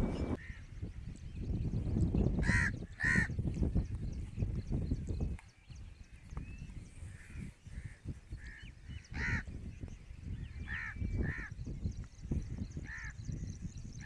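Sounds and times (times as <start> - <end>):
low rumbling noise: 0.0 - 0.4
birds harsh calls: 0.0 - 14.0.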